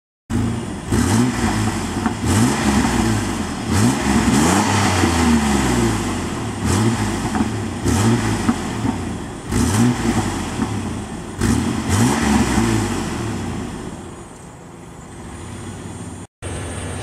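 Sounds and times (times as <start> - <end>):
car engine revving: 0.3 - 14.3
exhaust popping: 0.3 - 14.5.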